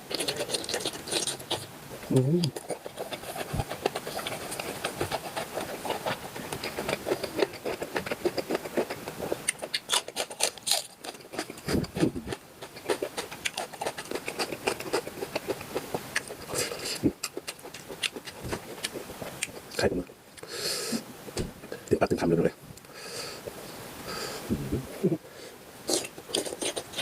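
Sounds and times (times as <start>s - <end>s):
mouth chewing with clicks and smacks: 0.0s - 20.5s, 25.9s - 27.0s.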